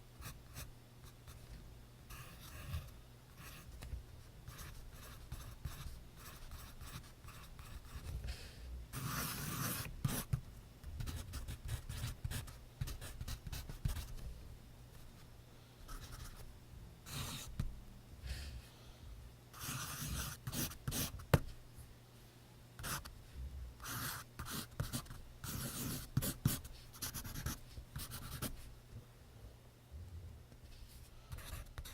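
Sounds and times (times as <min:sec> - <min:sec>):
pencil scratching on paper: 0:02.1 - 0:03.8, 0:04.5 - 0:08.2, 0:08.9 - 0:10.4, 0:17.1 - 0:17.6, 0:19.6 - 0:21.2, 0:23.8 - 0:28.6, 0:31.3 - 0:31.9.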